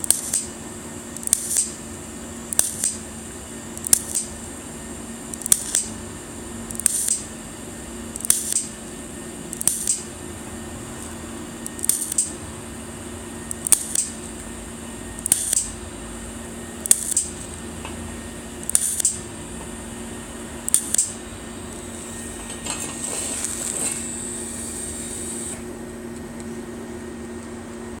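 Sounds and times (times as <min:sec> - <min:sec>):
welder arc bursts: 0:00.0 - 0:01.9, 0:02.5 - 0:03.1, 0:03.7 - 0:04.6, 0:05.3 - 0:07.4, 0:08.1 - 0:08.8, 0:09.5 - 0:10.2, 0:11.0 - 0:12.6, 0:13.4 - 0:20.0, 0:20.6 - 0:25.6
welding machine hum: 0:00.0 - 0:28.0.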